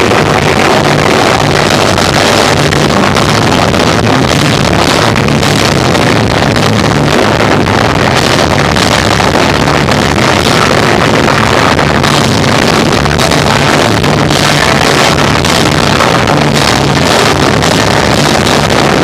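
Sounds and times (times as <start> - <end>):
distorted live rock band: 0.0 - 19.0.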